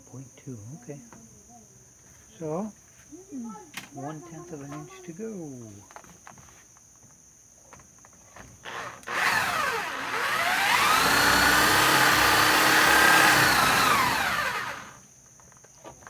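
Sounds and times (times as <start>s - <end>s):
electric drill boring into wood: 8.6s - 15.0s.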